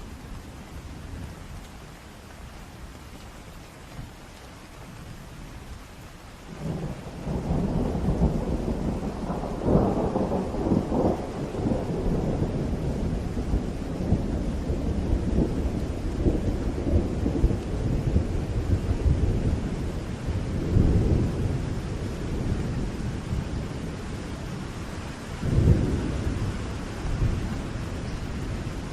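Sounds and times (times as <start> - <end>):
rain falling: 0.0 - 28.9
thunder rumbling: 6.5 - 28.9.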